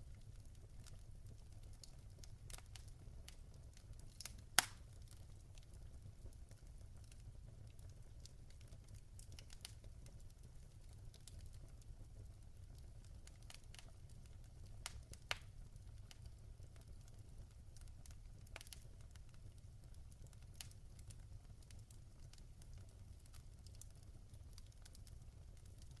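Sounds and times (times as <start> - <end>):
logs crackling in fireplace: 0.0 - 26.0
sharp pops of burning wood: 4.0 - 4.9, 14.8 - 15.5.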